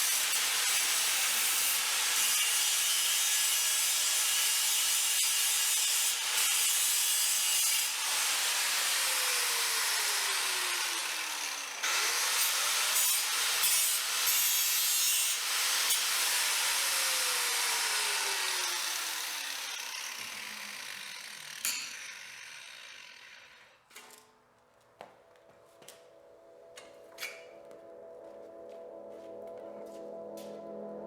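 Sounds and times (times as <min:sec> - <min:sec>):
power grinder grinding steel: 0:00.0 - 0:23.9.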